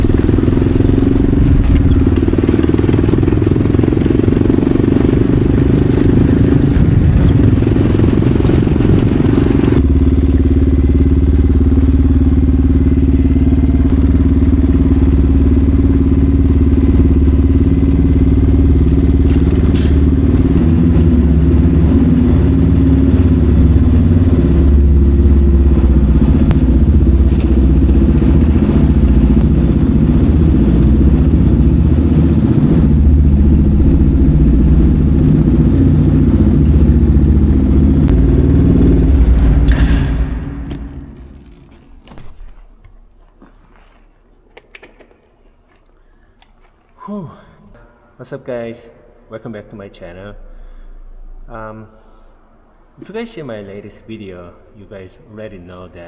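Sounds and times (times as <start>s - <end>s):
pickup truck engine running: 0.0s - 43.8s.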